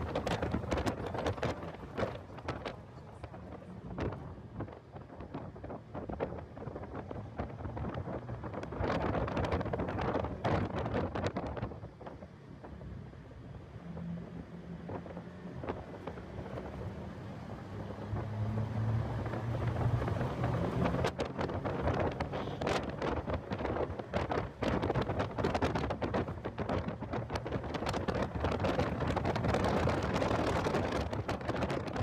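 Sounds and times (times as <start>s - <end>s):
car engine: 0.0s - 32.0s
wind buffeting microphone: 0.0s - 32.0s.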